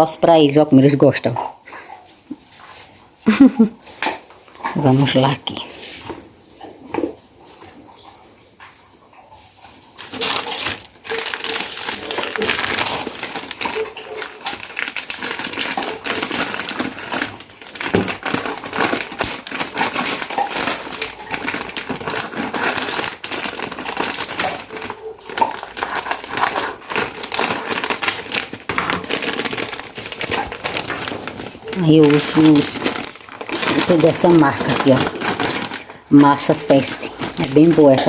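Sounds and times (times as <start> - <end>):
plastic packaging crinkling: 10.0 - 38.0.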